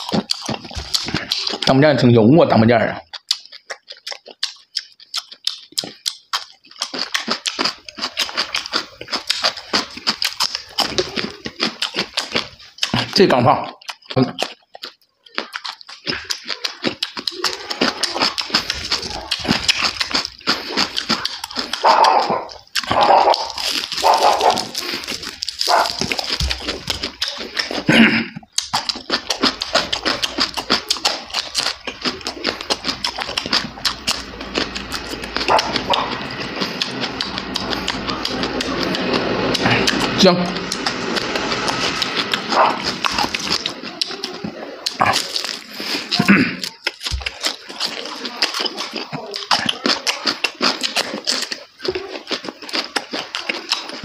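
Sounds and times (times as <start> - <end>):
wet mouth and lip-smacking: 0.0 - 2.0, 2.9 - 54.0
crunching and chewing: 0.0 - 54.0.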